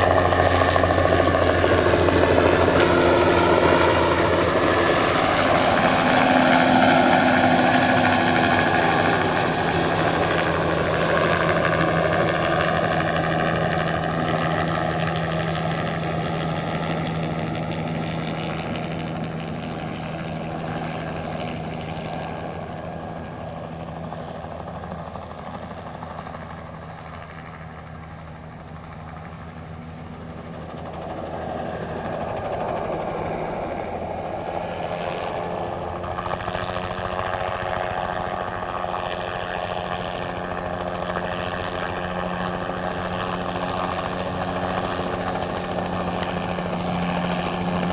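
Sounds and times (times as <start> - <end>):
helicopter engine and rotor: 0.0 - 47.9.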